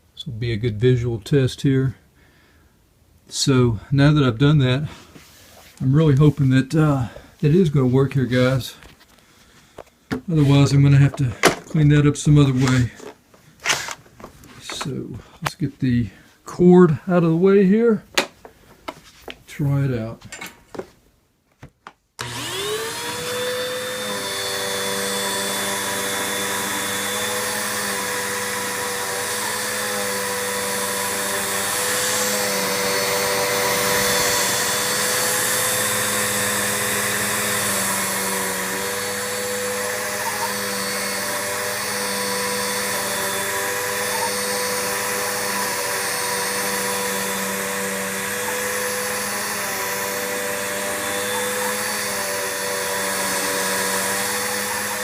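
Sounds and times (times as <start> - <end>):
vacuum cleaner motor running: 22.2 - 55.0.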